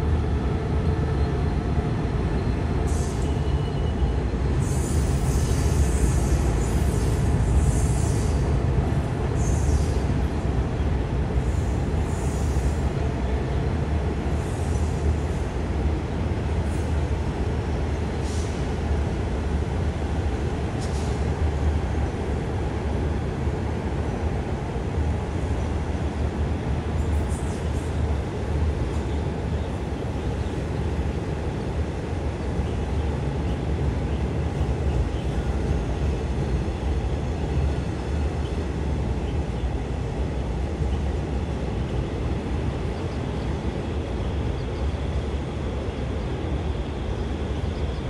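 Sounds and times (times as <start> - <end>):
train wheels rumbling on rail: 0.0 - 48.0.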